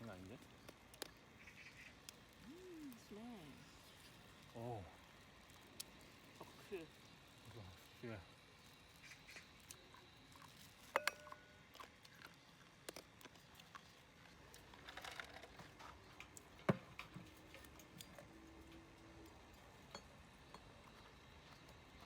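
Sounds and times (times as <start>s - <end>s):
tableware and utensils clicking: 10.9s - 11.6s
ringing clink: 11.0s - 11.5s.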